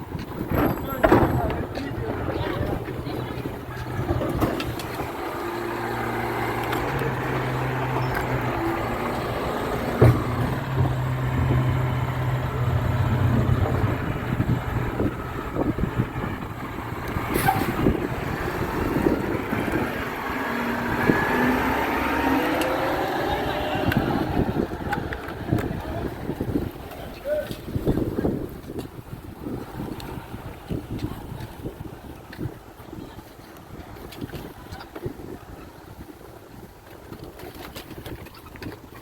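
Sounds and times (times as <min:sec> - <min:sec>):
garbage truck engine running: 0:00.0 - 0:26.9.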